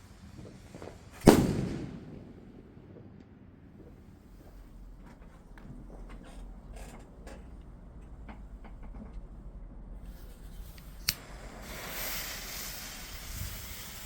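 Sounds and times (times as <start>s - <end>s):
distant fireworks pops: 0.1s - 6.1s
sharp firework crack: 0.3s - 3.2s, 11.0s - 14.0s
hissing crackle: 10.3s - 14.0s.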